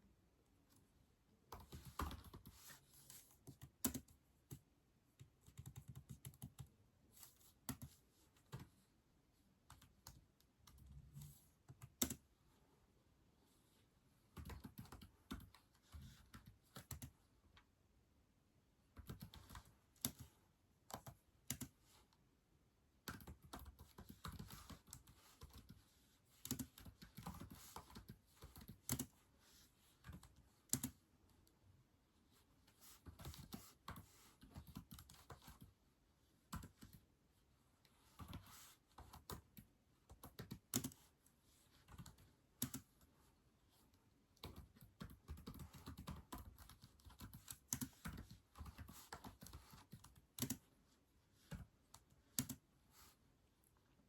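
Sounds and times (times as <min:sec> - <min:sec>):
keyboard typing: 0:01.5 - 0:08.7, 0:09.7 - 0:12.3, 0:14.4 - 0:17.2, 0:19.0 - 0:20.3, 0:20.9 - 0:21.8, 0:23.0 - 0:25.8, 0:26.4 - 0:29.2, 0:30.0 - 0:31.0, 0:33.0 - 0:35.7, 0:36.5 - 0:37.0, 0:38.2 - 0:41.1, 0:41.8 - 0:43.0, 0:44.4 - 0:50.7, 0:51.4 - 0:52.6.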